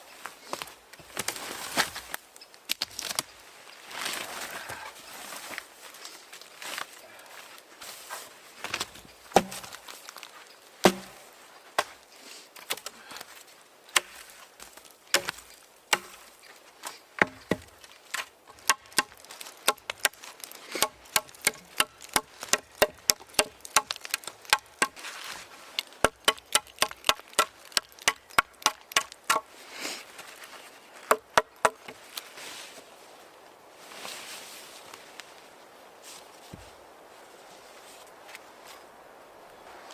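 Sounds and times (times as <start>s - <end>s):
blade chopping on surface: 9.4s - 9.8s, 10.9s - 11.2s, 15.2s - 15.4s, 16.0s - 16.2s, 17.2s - 17.7s, 18.5s - 20.2s, 20.8s - 25.0s, 26.0s - 29.4s, 31.1s - 31.9s.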